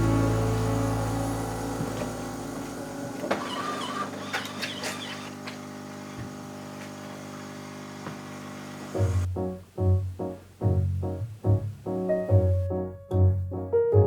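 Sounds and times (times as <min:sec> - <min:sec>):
background music with held tones: 0:00.0 - 0:03.0, 0:09.2 - 0:14.0.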